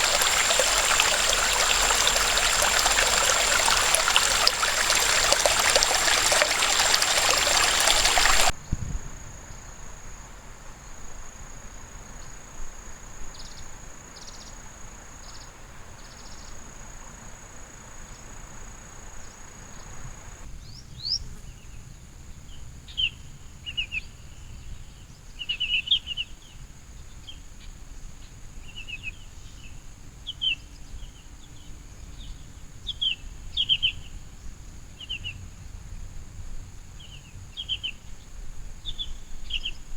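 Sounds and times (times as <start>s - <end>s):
high insect drone: 0.0s - 8.5s
rushing mountain stream: 0.0s - 8.5s
small birds chirping: 0.0s - 8.5s.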